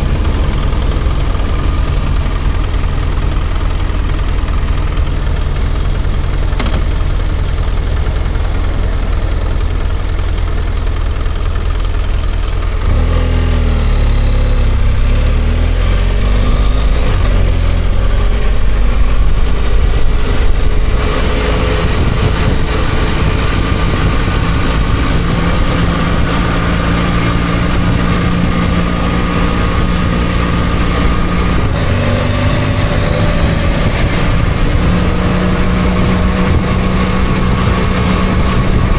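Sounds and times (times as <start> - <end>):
motorcycle engine revving: 0.0 - 38.9
wind noise: 15.8 - 38.9.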